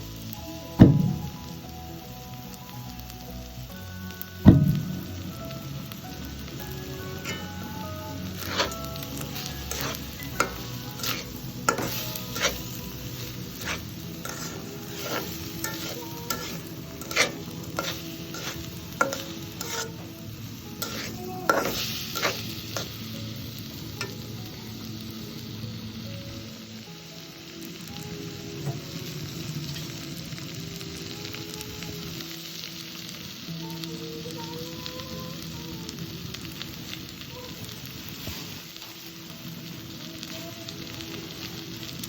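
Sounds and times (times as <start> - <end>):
food sizzling in a pan: 0.0 - 42.0
utensil scraping a pan: 7.2 - 7.7, 8.3 - 20.1, 20.8 - 23.0.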